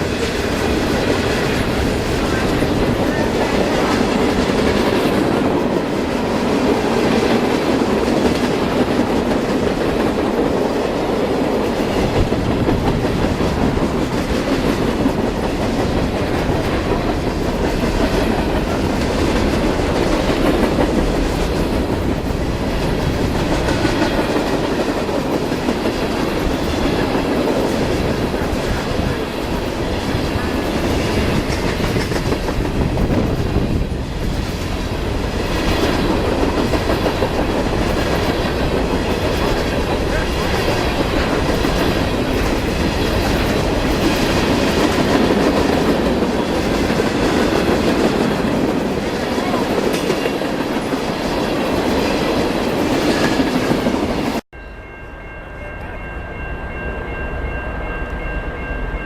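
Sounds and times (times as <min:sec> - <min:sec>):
train wheels clacking on rail joints: 0:00.0 - 0:54.4.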